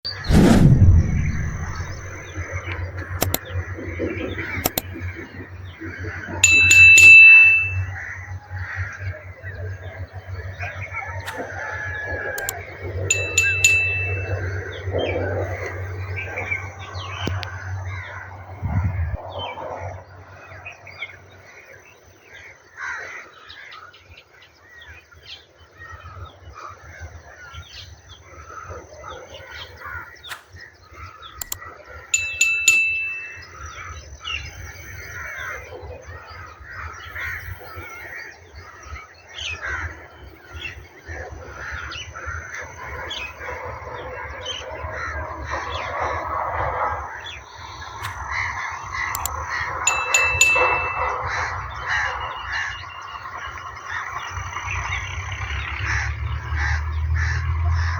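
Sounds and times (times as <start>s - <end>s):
low rumble: 0.2s - 2.4s
birds chirping and calling: 48.1s - 55.7s.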